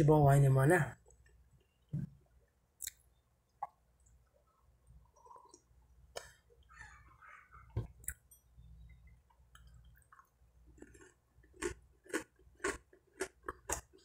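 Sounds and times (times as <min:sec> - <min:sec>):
wet mouth clicks: 0:02.8 - 0:03.0
person chewing bread: 0:09.3 - 0:14.0.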